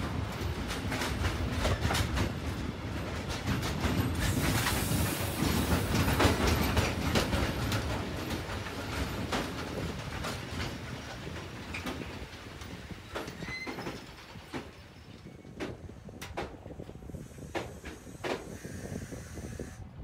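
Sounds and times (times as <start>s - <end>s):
freight train rumbling past: 0.0s - 20.0s
wheels clicking over rail joints: 0.1s - 19.7s
wheel squeals: 13.0s - 15.4s.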